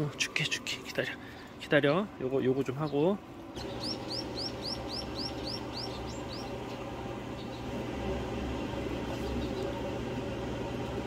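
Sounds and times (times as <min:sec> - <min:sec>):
steady low hum: 0:00.0 - 0:11.0
bird chirping: 0:02.8 - 0:07.8, 0:09.2 - 0:09.8.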